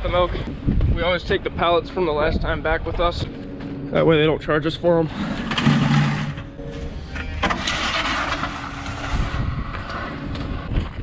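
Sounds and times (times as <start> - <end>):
vehicle engine rumbling: 0.0 - 11.0
rattling: 5.2 - 6.6.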